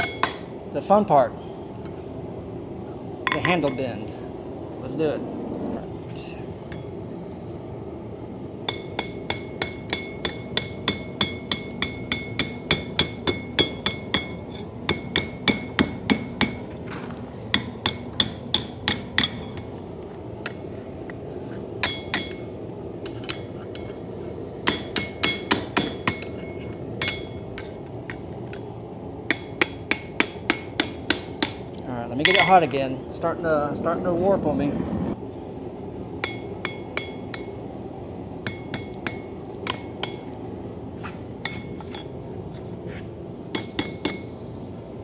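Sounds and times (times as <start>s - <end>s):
hammer ringing on hot steel: 0.0s - 0.6s, 3.2s - 4.0s, 6.7s - 6.9s, 8.6s - 16.8s, 17.5s - 19.8s, 21.8s - 28.7s, 29.3s - 32.8s, 36.2s - 37.7s, 38.4s - 40.4s, 41.4s - 42.2s, 43.5s - 44.5s
low rushing noise: 2.2s - 8.6s, 32.0s - 36.2s.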